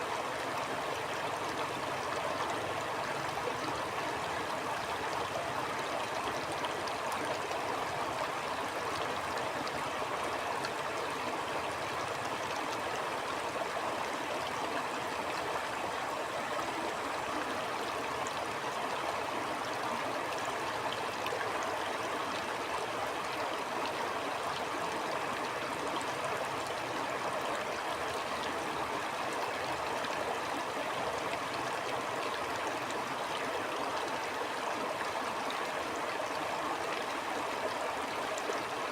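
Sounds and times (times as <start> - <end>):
stream babbling over stones: 0.0 - 38.9.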